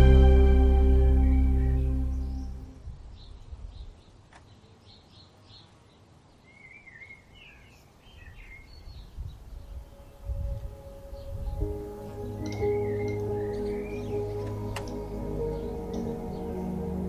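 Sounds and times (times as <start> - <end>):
music: 0.0 - 2.7, 11.2 - 17.0
low rumbling background noise: 0.0 - 4.0, 9.3 - 17.0
songbirds chirping: 0.0 - 17.0.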